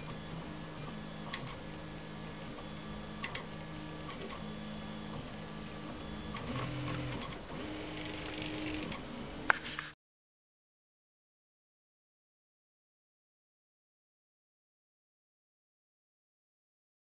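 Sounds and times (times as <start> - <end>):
stepper motor whine: 0.0 - 10.0.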